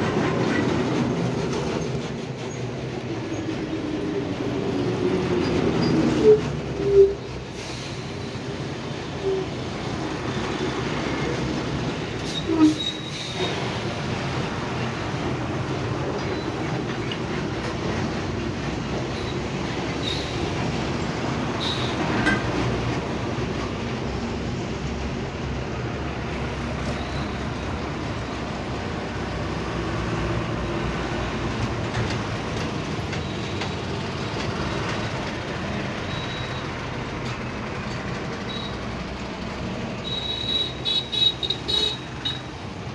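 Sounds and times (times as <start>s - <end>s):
heavy vehicles rumbling past: 13.1s - 42.9s.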